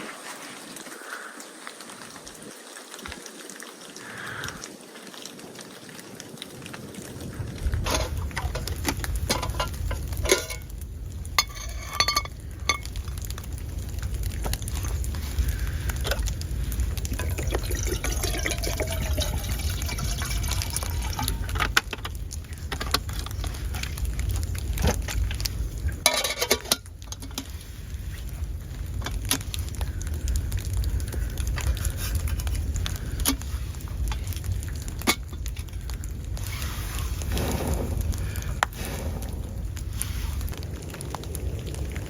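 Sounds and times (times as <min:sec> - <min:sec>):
liquid sounds: 0:00.0 - 0:42.0
steady low rumble: 0:07.2 - 0:42.0.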